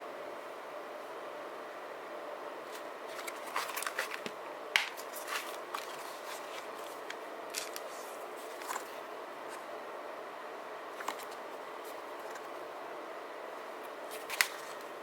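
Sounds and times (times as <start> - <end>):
paper rustling: 2.7 - 9.7, 11.0 - 12.6, 14.1 - 14.9.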